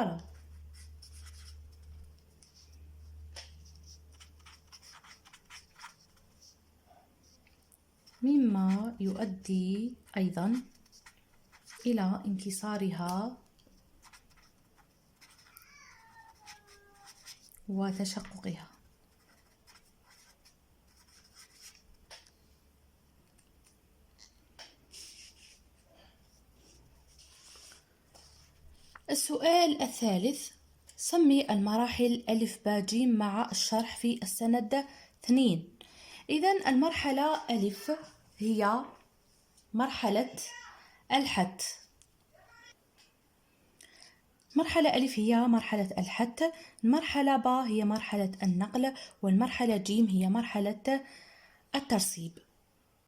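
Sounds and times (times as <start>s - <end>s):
pen scratching on paper: 0.2s - 6.6s, 8.0s - 9.4s, 10.0s - 12.0s, 14.0s - 15.6s, 16.3s - 21.9s.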